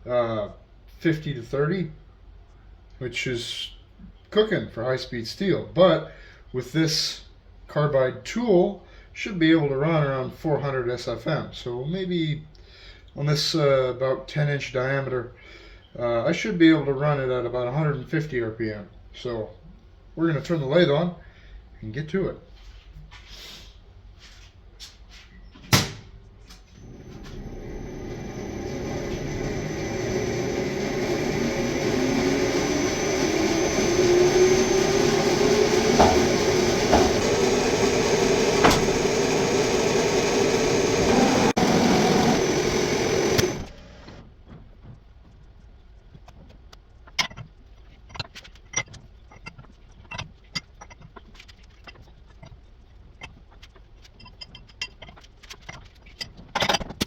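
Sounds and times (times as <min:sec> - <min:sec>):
lathe motor humming: 0:26.8 - 0:44.2.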